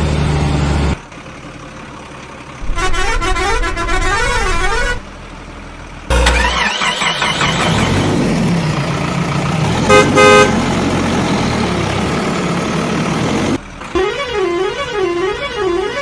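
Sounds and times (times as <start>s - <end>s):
vehicle engine rumbling: 0.0s - 16.0s
car horn honks: 2.6s - 5.0s, 6.1s - 7.2s, 9.8s - 10.6s, 13.9s - 16.0s.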